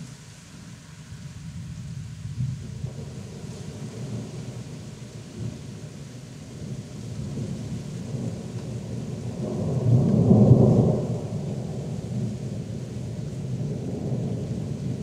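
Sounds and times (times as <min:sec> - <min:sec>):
rain falling: 0:00.0 - 0:15.0
thunder rumbling: 0:06.6 - 0:15.0.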